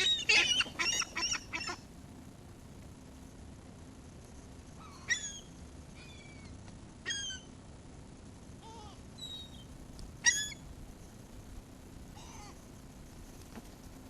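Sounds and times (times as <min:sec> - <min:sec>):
seagulls calling: 0:00.0 - 0:01.8, 0:04.8 - 0:07.5, 0:12.1 - 0:12.6.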